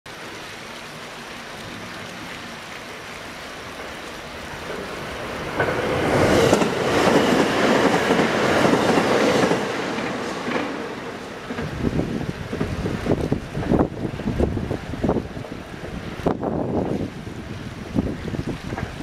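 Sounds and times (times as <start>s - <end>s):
train wheels clattering over rails: 4.6s - 13.9s.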